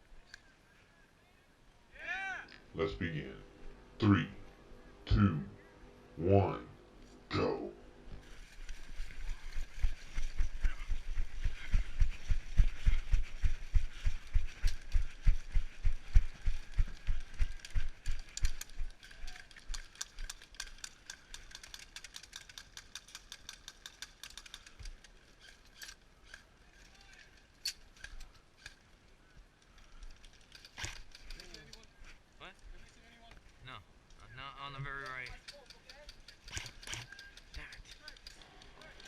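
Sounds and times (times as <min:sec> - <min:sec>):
lighter footsteps: 0:08.1 - 0:19.0
rustling: 0:08.2 - 0:33.7
sharp clicks: 0:35.0 - 0:39.0.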